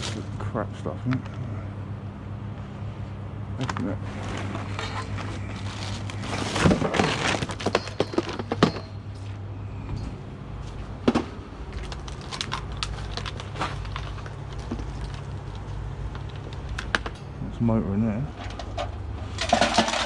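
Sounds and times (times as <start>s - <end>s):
low hum: 0.0s - 20.0s
plastic and metal cracking and rattling: 3.6s - 9.0s, 11.0s - 17.2s, 18.3s - 20.0s.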